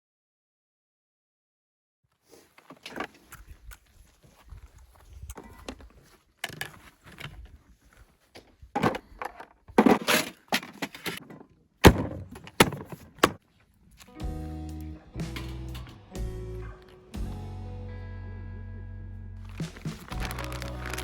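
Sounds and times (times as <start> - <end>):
objects knocking and clunking: 8.4 - 13.4.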